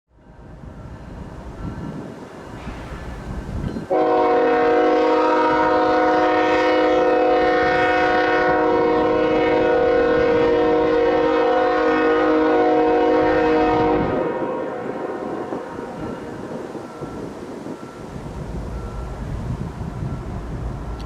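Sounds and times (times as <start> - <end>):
train rumble: 0.2 - 21.0
locomotive air horn chord: 3.9 - 16.3.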